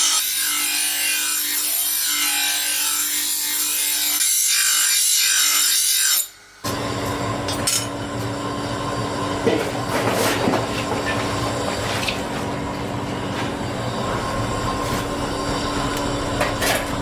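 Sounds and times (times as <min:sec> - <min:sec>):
power tool grinding steel blade: 0:00.0 - 0:08.0
machine humming and rattling: 0:06.3 - 0:17.0.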